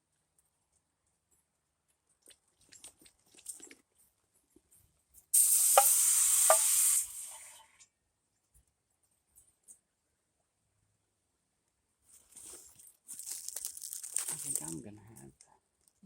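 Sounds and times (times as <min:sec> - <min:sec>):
liquid sizzling on hot stove: 0:05.4 - 0:07.7.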